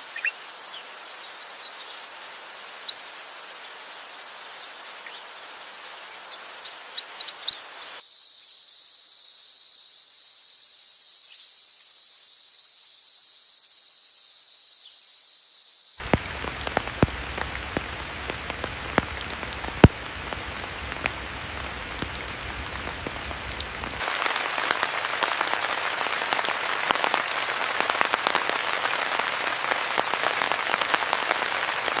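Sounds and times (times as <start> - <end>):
rain-like hiss: 0.0 - 32.0
high insect drone: 7.7 - 25.5.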